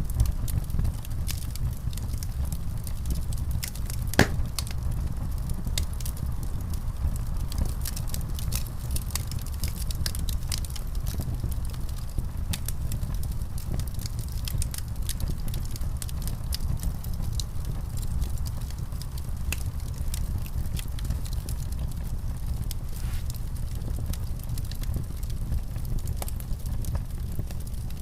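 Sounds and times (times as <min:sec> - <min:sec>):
wood fire crackling: 0:00.0 - 0:28.0
fire pops: 0:02.9 - 0:06.1, 0:19.4 - 0:27.9.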